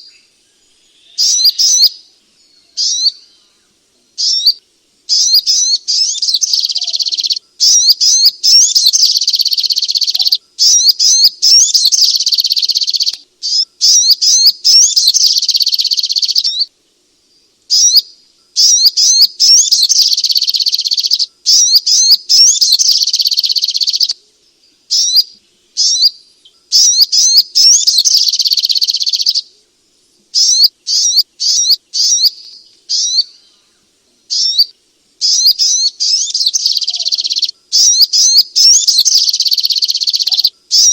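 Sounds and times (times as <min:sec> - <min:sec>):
bird chattering song: 0:00.0 - 0:16.7, 0:17.7 - 0:29.5, 0:30.3 - 0:40.9.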